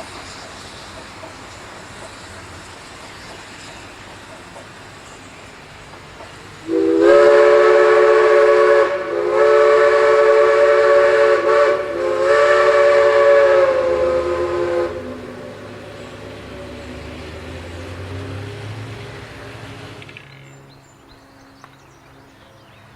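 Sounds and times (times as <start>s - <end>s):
steam locomotive chime whistle: 6.6s - 17.1s.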